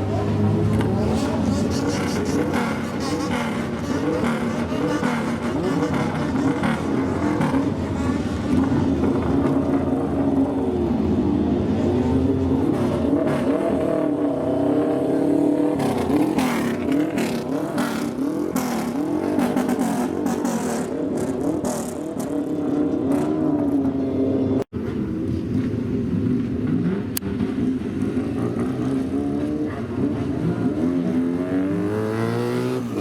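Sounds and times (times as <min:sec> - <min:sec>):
car engine revving: 0:00.0 - 0:24.2, 0:26.1 - 0:33.0.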